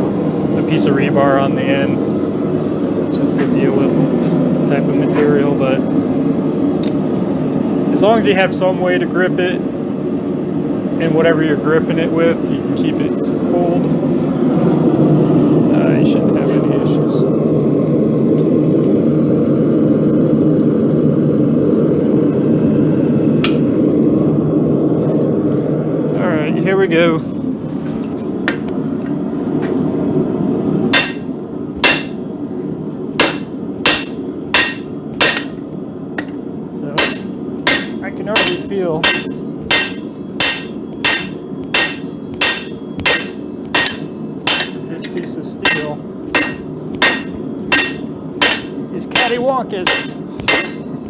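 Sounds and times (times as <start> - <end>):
hammer striking steel on anvil: 31.0 - 32.2, 33.2 - 35.6, 36.2 - 36.4, 37.0 - 51.0.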